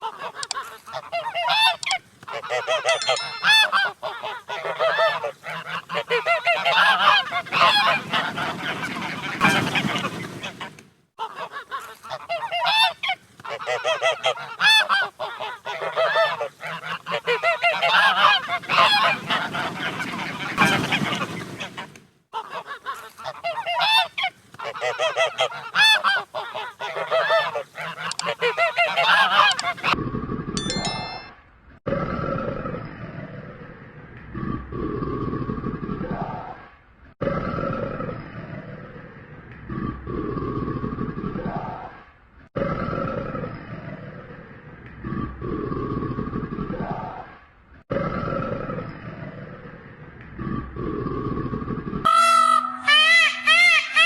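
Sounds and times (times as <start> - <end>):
geese honking: 0.0 - 30.0, 52.1 - 54.0.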